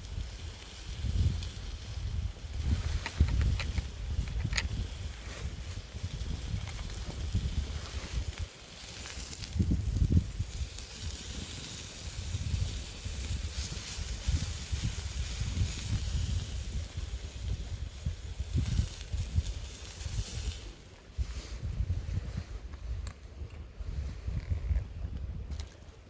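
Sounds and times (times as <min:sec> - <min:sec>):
food hissing over wood fire: 0:00.0 - 0:26.0.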